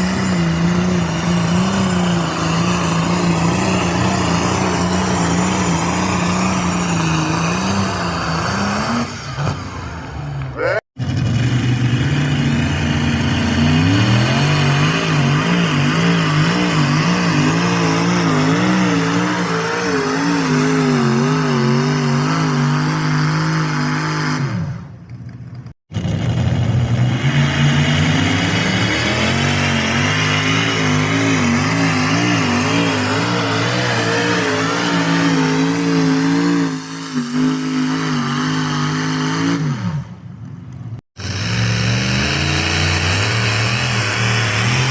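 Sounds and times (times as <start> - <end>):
tractor engine revving under load: 0.0 - 25.1, 25.9 - 44.9.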